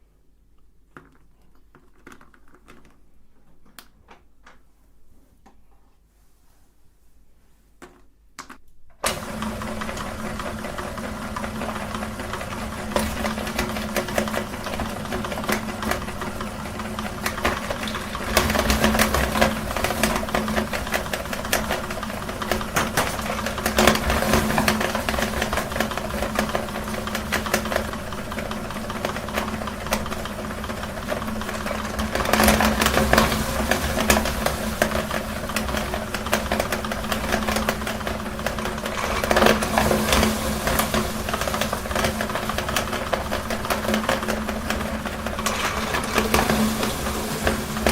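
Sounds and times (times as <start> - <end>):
meat grinder motor humming: 9.0 - 47.9.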